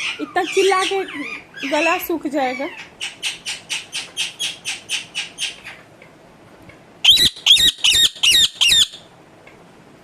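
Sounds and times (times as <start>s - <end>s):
parrot screeching: 7.0s - 9.1s.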